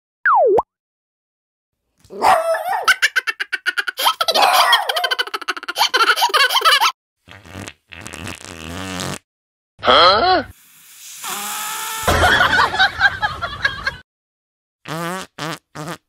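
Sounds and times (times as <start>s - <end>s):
dog barking rapidly: 2.2s - 3.1s, 4.2s - 5.1s.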